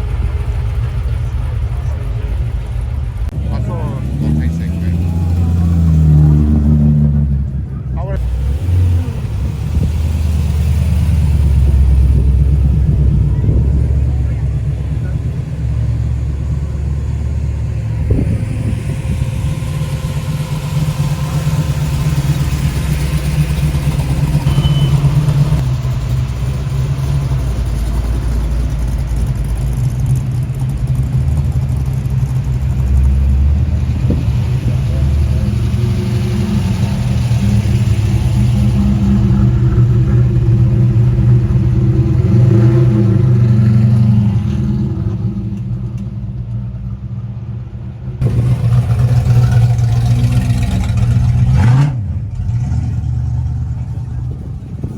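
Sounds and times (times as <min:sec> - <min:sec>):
people's voices: 0:00.0 - 0:30.7, 0:31.8 - 0:44.0
car engines rumbling: 0:00.0 - 0:54.9.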